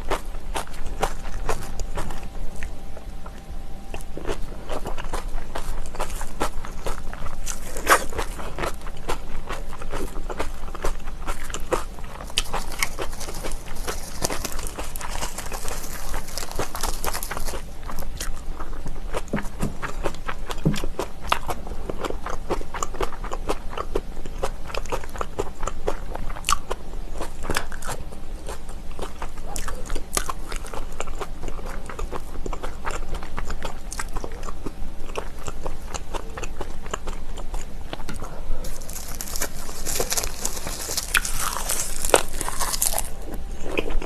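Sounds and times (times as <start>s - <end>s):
person chewing crunchy food: 0.0s - 44.0s.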